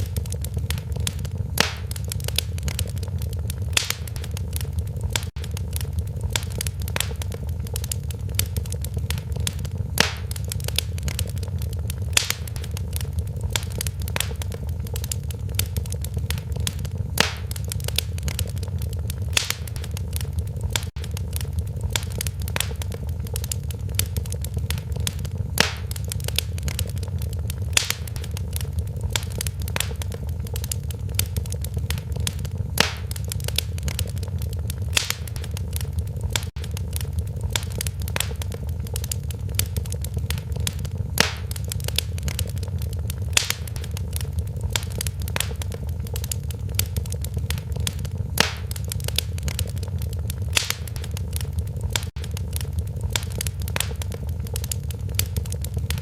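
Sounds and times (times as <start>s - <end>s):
fire crackling and popping: 0.0s - 56.0s
low rumble of flames: 0.0s - 56.0s.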